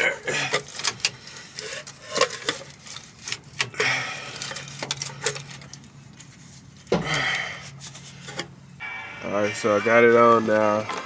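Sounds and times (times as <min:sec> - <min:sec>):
scraping rattle: 0:00.3 - 0:08.5.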